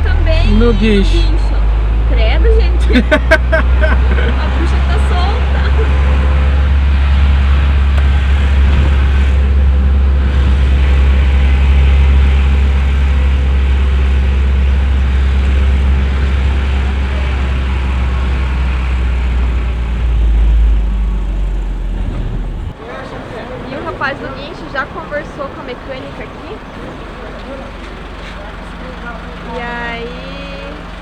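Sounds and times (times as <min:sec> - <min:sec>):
truck engine and road rumble: 0:00.0 - 0:31.0.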